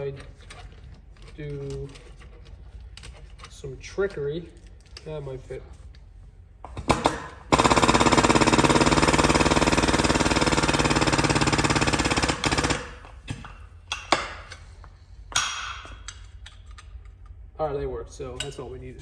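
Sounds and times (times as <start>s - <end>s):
impact wrench hammering: 6.7s - 14.6s, 15.3s - 16.2s.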